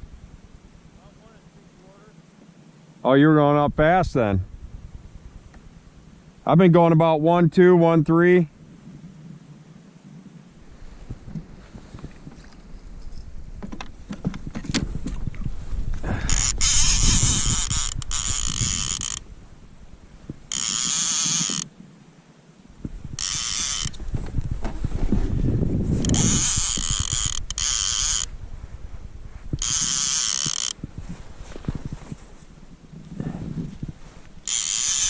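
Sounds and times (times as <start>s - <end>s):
fishing reel whirring: 16.1s - 19.4s, 20.4s - 21.7s, 23.0s - 24.0s, 25.9s - 28.4s, 29.6s - 30.9s, 34.3s - 35.0s.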